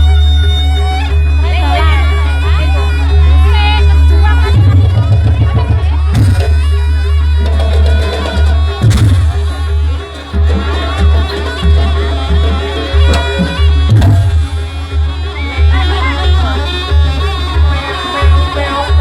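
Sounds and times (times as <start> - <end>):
shrill reed-pipe melody: 0.0 - 17.2
drums and gongs: 4.3 - 16.5
sharp percussive strokes: 6.2 - 15.3.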